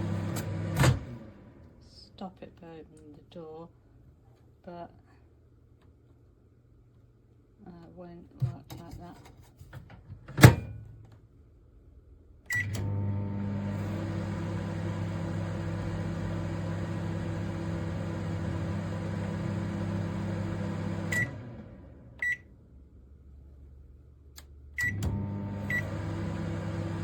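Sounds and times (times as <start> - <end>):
microwave hum and fan: 0.0 - 1.8, 12.5 - 23.3, 24.1 - 27.0
microwave beeps: 12.5 - 13.0, 21.0 - 21.4, 22.2 - 22.5, 24.8 - 26.8.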